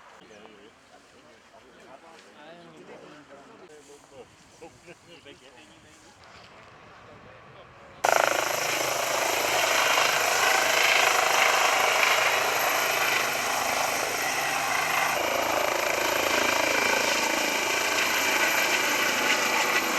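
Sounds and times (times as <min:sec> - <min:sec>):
helicopter rotor and turbine: 0:08.0 - 0:19.9.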